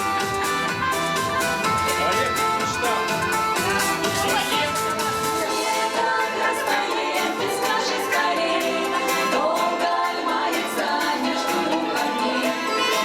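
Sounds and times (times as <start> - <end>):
instrumental accompaniment: 0.0 - 13.0
vocal group singing: 3.5 - 13.0.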